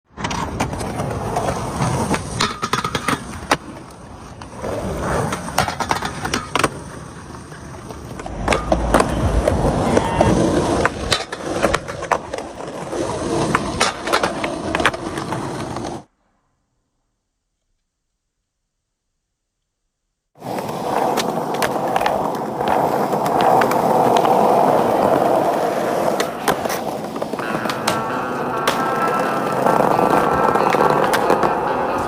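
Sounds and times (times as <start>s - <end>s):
skateboard clacks and knocks: 0.1s - 16.0s, 20.4s - 32.0s
skateboard wheels rolling on pavement: 0.1s - 16.5s, 20.4s - 32.0s.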